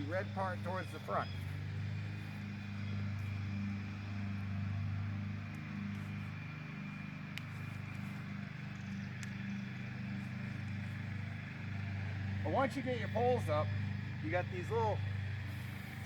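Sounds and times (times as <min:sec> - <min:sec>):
engine humming: 0:00.0 - 0:16.0
faint sharp clicks: 0:07.3 - 0:08.0, 0:08.7 - 0:09.6.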